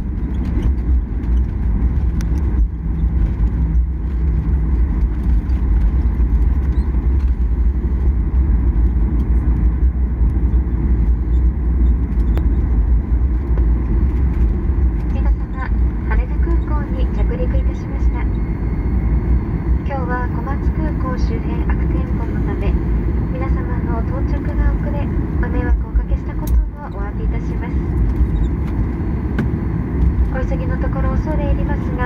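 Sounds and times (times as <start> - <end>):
aircraft cabin rumble: 0.0 - 32.0.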